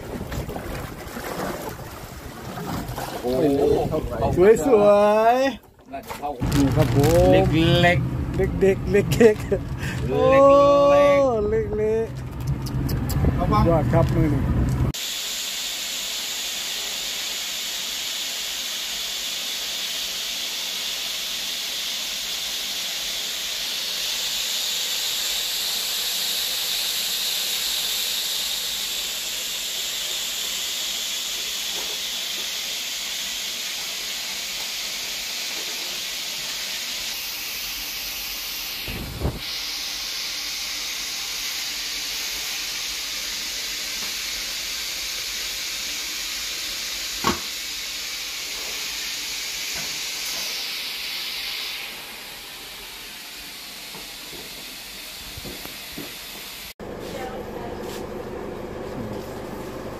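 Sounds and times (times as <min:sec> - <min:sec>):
food frying in hot oil: 0:15.0 - 0:56.7.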